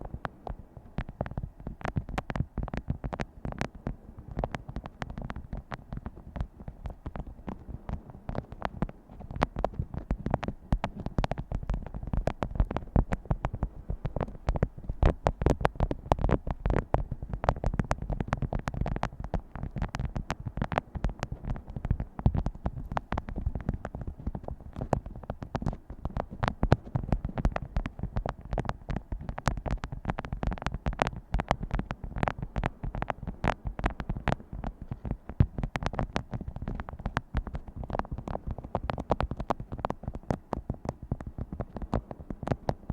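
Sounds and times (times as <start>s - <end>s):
fingers tapping on objects: 0.2s - 42.9s.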